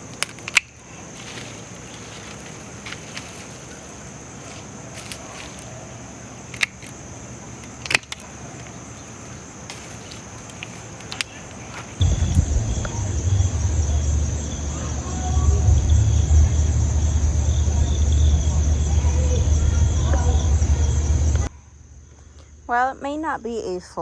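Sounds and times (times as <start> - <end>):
sharp clicks and rustles: 0.0 - 13.1
high-pitched insect chorus: 0.0 - 23.8.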